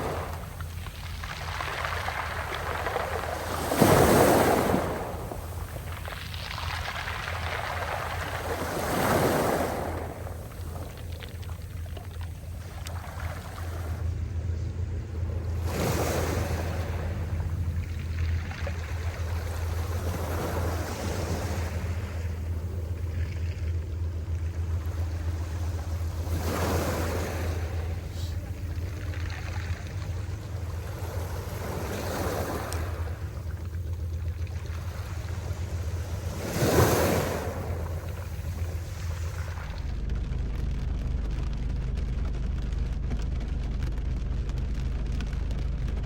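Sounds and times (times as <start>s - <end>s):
sea waves washing in: 0.0s - 46.0s
steady low hum: 0.0s - 46.0s.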